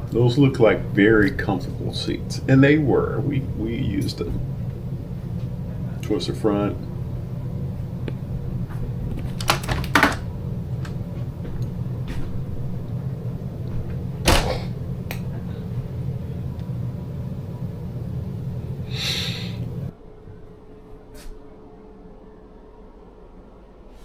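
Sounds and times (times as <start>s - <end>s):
sharp knocks and clicks: 9.1s - 11.0s.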